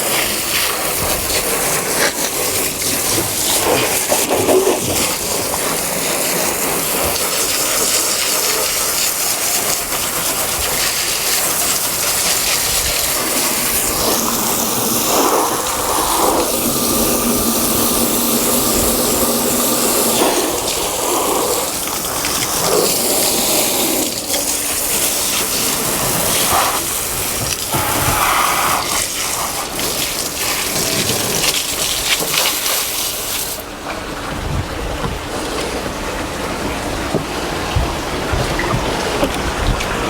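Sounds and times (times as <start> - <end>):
water spray hissing: 0.0 - 33.6
motor hum: 11.4 - 28.9.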